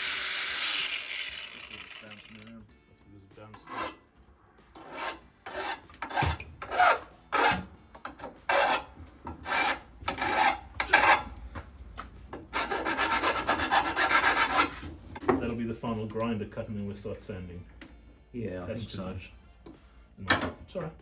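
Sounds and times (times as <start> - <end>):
hand file rasping on steel: 3.5 - 4.0, 4.8 - 11.3, 12.5 - 14.9.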